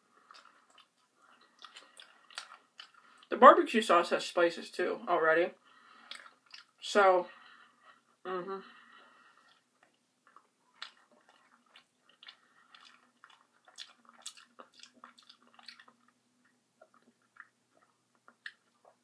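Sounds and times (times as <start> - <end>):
person chewing food: 0.0 - 3.3, 5.8 - 6.8, 8.8 - 19.0.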